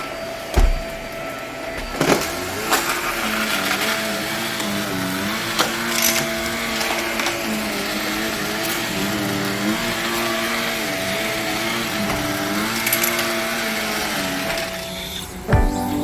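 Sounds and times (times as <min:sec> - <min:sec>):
carpet cleaner suction motor: 0:00.0 - 0:15.5
acoustic guitar music: 0:15.5 - 0:16.0.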